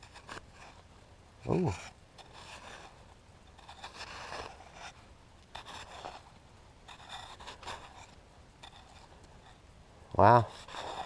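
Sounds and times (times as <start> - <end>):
snow being scraped and dug: 1.5 - 5.0, 5.6 - 9.6, 10.2 - 11.0.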